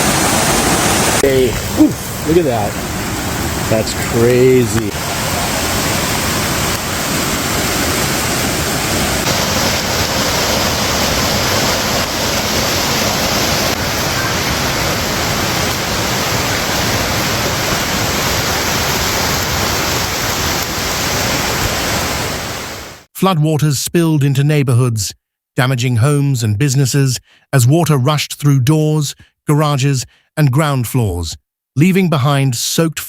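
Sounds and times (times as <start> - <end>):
floodwater rushing: 0.0 - 23.1.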